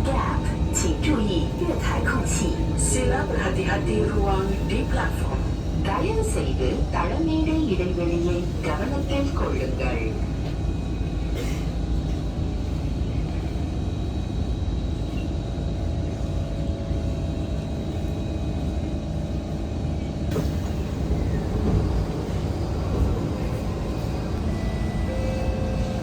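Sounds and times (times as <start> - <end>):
low rumble inside train car: 0.0 - 26.0.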